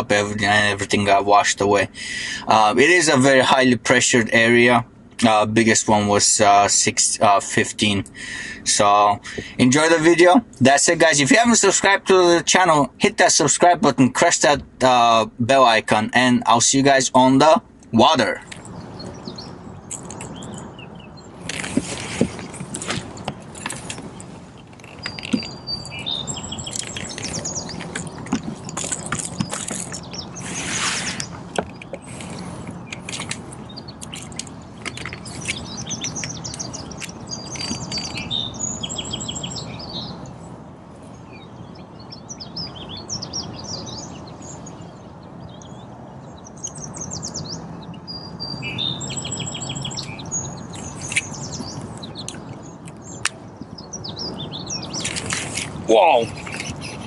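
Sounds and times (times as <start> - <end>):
songbirds trilling and chirping: 0.0 - 57.0
sharp clicks and knocks: 26.6 - 30.2, 31.5 - 38.2.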